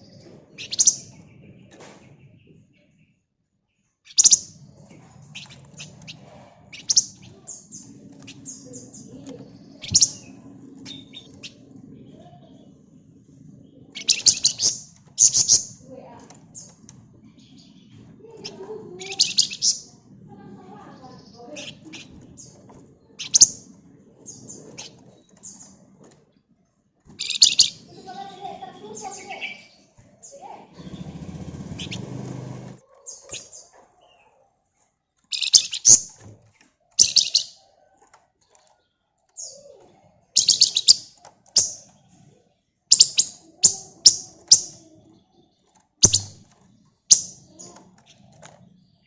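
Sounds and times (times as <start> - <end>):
songbird scratchy chattering: 0.5 - 1.4, 4.1 - 12.9, 13.6 - 25.8, 27.2 - 33.7, 35.3 - 36.2, 37.0 - 37.6, 39.4 - 42.2, 42.9 - 49.0
bird chirps and whistles: 4.1 - 4.5, 14.0 - 15.8, 19.1 - 19.9, 37.0 - 37.6, 40.4 - 41.0, 42.9 - 43.4, 46.0 - 46.4
bird harsh rattling calls: 4.1 - 4.6, 5.2 - 11.7, 14.0 - 15.9, 17.6 - 20.0, 27.2 - 33.7, 35.3 - 36.2, 40.4 - 41.9, 42.9 - 44.8, 46.0 - 48.5.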